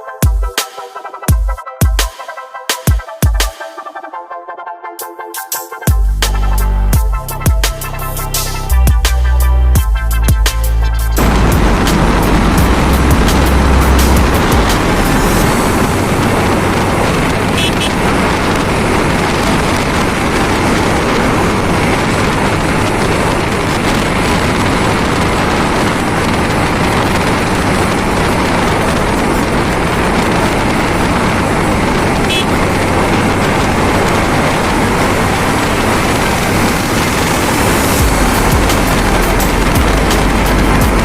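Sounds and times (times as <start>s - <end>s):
motorcycle wind and road noise: 5.9s - 41.0s
wind rushing over microphone: 11.2s - 41.0s.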